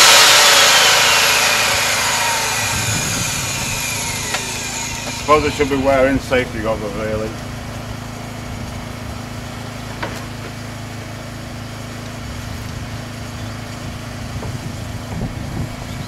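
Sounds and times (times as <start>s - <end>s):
table saw motor humming: 0.0s - 11.3s.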